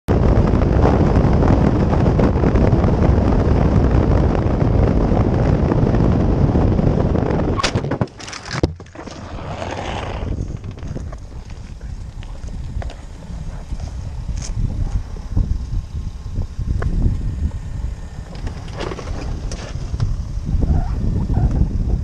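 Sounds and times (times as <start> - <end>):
motorcycle wind and road noise: 0.1 - 22.0
motorcycle crashing: 7.6 - 11.9, 18.3 - 20.1.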